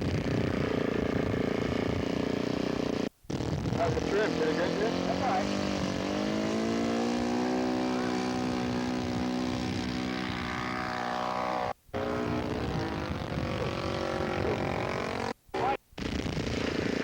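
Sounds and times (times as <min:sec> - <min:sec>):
model airplane engine buzzing: 0:00.0 - 0:17.0.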